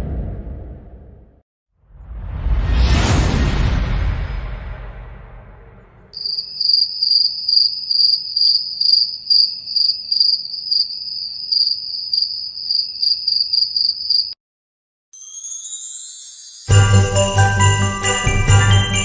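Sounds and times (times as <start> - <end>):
cinematic whoosh effect: 1.9 - 6.2
crickets chirping: 6.2 - 14.4.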